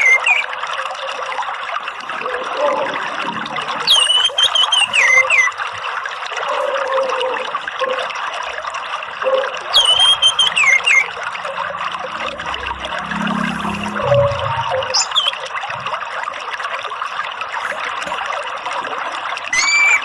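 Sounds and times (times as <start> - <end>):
water trickling and splashing: 0.0 - 20.0
thrush call: 9.2 - 15.4.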